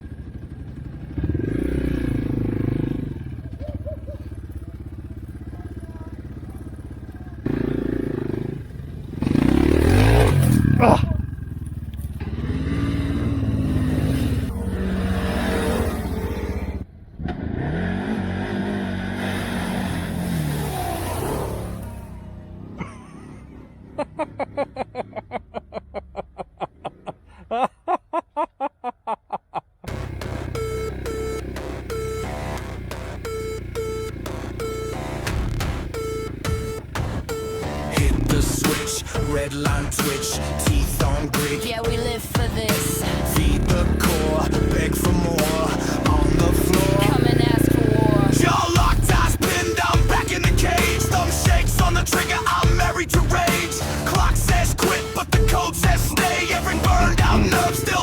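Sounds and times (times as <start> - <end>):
motorbike engine idling and revving: 0.0 - 27.4, 29.8 - 58.0
person laughing: 3.4 - 4.6, 10.6 - 11.3, 22.8 - 29.9, 54.2 - 58.0.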